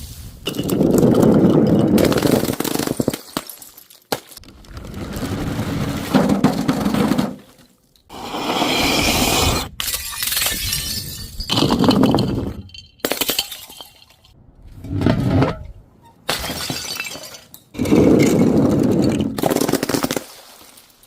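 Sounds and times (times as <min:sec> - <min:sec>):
glass bottles shattering: 0:00.5 - 0:04.4, 0:09.8 - 0:14.4, 0:16.3 - 0:19.6.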